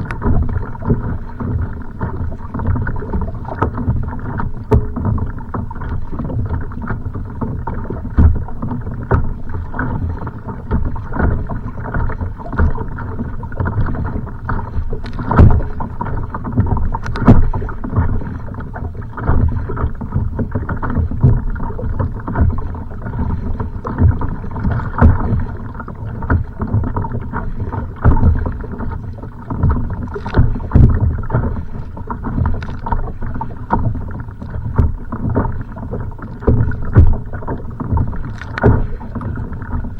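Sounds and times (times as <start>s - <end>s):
waves splashing against kayak hull: 0.0s - 39.9s
knocks on kayak hull: 15.0s - 15.9s, 36.4s - 39.0s.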